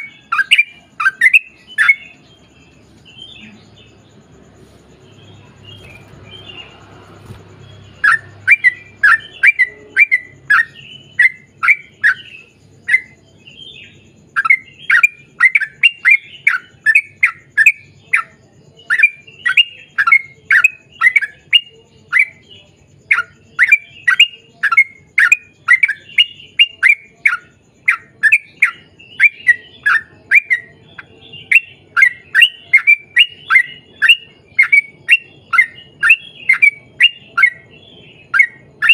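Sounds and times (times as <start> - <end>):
bird chirping rapidly: 0.0 - 22.4, 23.1 - 38.9.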